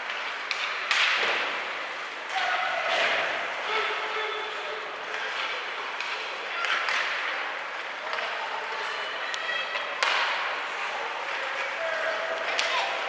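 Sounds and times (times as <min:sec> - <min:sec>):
crowd voices in arena: 0:00.0 - 0:13.0.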